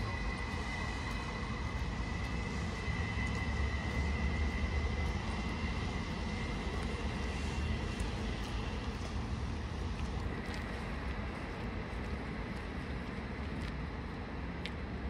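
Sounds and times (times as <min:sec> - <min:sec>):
high train whine: 0:00.0 - 0:15.0
train rumbling: 0:00.0 - 0:15.0.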